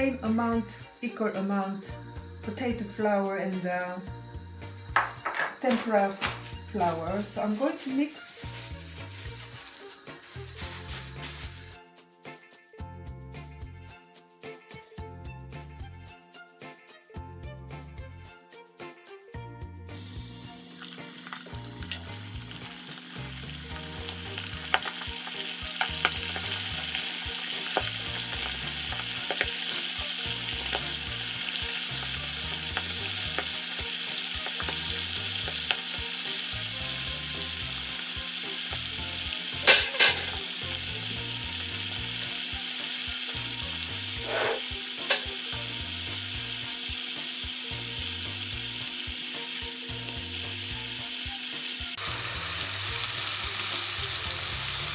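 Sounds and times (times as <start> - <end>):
chicken deep-frying in oil: 4.8 - 11.8, 20.0 - 54.9.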